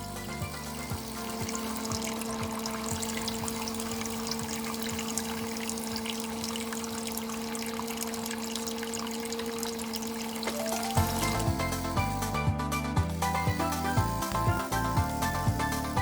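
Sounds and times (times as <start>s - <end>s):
water sloshing in a tub: 0.0s - 12.2s
small electric motor humming: 0.0s - 12.5s, 13.1s - 16.0s.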